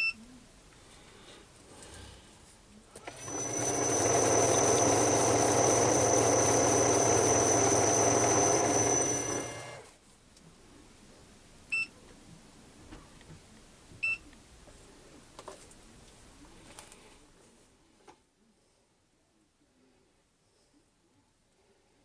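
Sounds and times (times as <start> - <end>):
power tool motor whining: 3.0 - 9.9.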